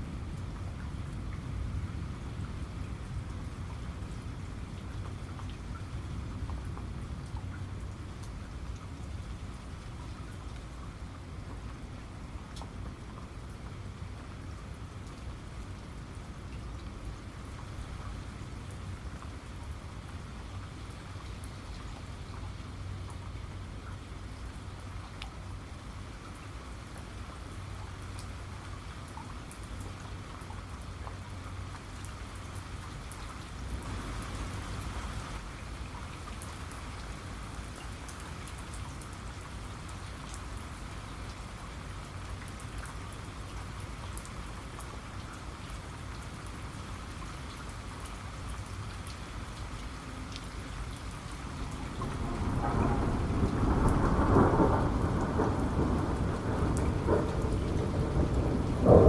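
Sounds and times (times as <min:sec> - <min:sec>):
rain falling: 0:00.0 - 0:59.0
thunder rumble: 0:51.5 - 0:59.0.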